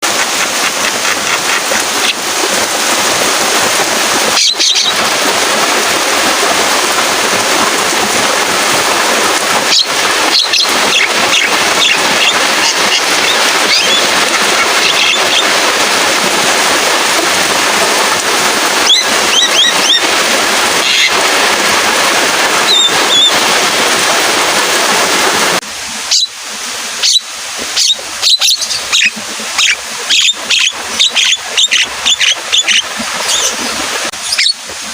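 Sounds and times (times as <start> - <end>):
heavy rain: 0.0 - 34.9
myna bird whistling calls: 18.8 - 20.0, 22.7 - 23.4, 26.1 - 26.3, 27.8 - 33.5.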